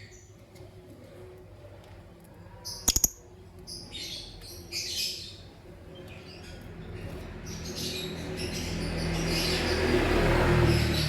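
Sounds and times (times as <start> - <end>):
lovebirds chirping: 2.7 - 6.5
sharp clicks: 2.9 - 3.2.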